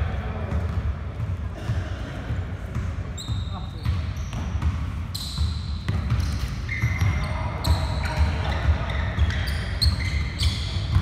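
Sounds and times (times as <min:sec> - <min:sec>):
basketball bouncing on court: 0:00.0 - 0:11.0
shoe squeaks: 0:03.1 - 0:11.0.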